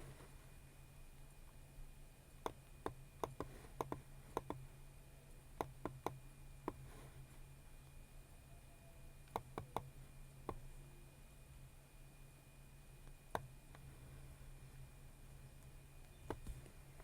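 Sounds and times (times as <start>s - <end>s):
mouse and keyboard clicks: 2.4s - 4.6s.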